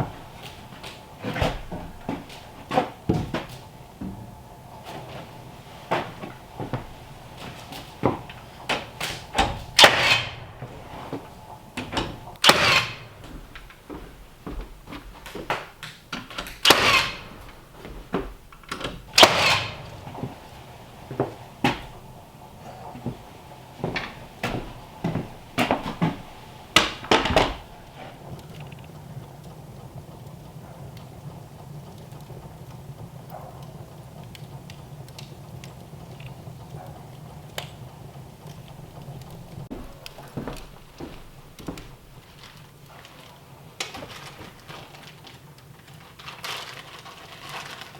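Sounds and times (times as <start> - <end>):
sharp bangs: 0.0 - 14.3, 16.6 - 17.8, 19.0 - 32.2
knocks and clatter: 0.0 - 43.2.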